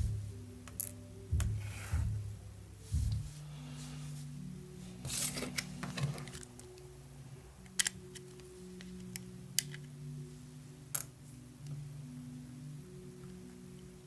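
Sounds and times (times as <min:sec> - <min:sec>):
soft background music: 0:00.0 - 0:14.0
clicks of small parts and tools: 0:07.6 - 0:09.9.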